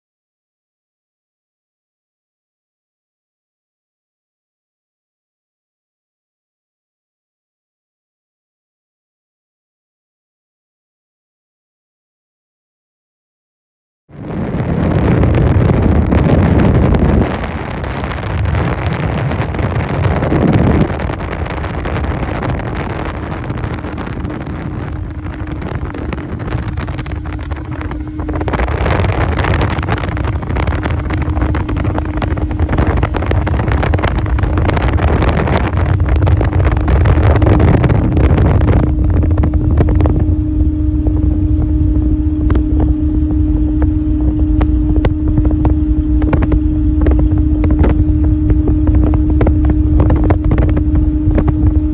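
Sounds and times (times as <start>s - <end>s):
motorboat motor humming: 14.1s - 51.9s
wind buffeting microphone: 14.1s - 51.9s.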